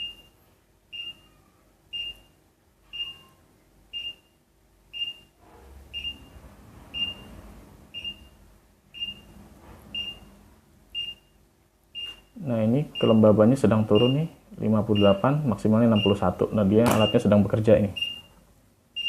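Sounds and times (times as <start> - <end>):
alarm buzzer beeping: 0.0 - 0.4.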